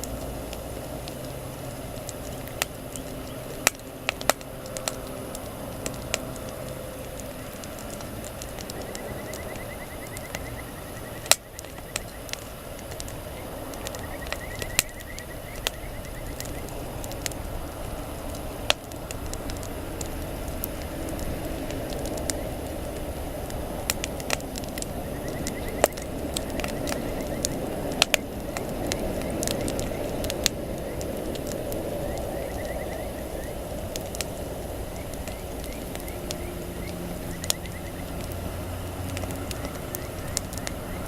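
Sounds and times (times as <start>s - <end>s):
burning wood popping and crackling: 0.0s - 41.0s
campfire flames rushing: 0.0s - 41.0s.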